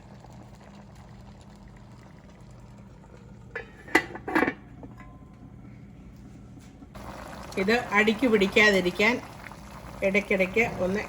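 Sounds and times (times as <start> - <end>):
faint steady hum: 0.0 - 11.0
utensil clattering on cooking pot: 3.5 - 5.2.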